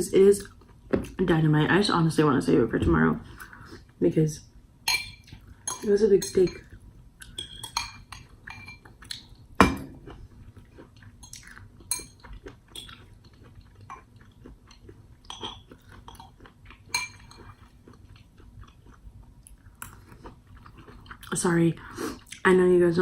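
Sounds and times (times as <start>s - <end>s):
spoon clinking against bowl: 4.9s - 6.7s, 7.3s - 8.9s, 16.9s - 17.5s
chewing: 10.0s - 21.4s.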